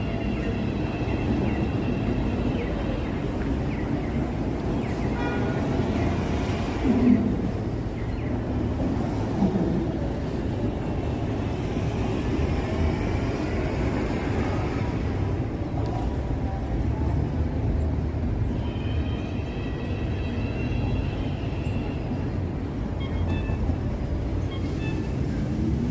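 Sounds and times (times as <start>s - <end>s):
light rail train rumbling past: 5.6s - 18.5s.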